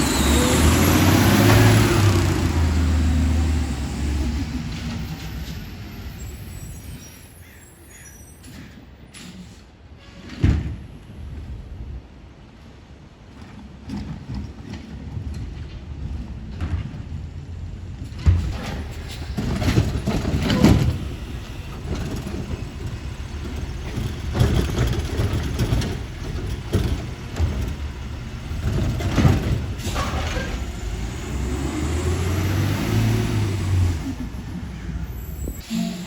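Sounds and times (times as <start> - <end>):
diesel engine running: 0.0 - 6.7, 17.7 - 35.9.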